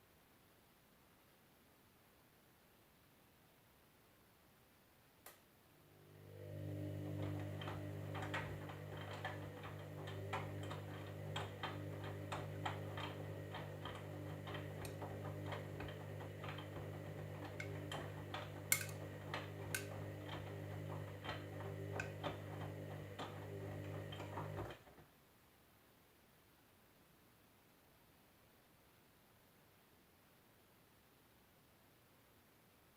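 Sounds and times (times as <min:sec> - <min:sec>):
washing machine motor hum: 0:05.8 - 0:25.0.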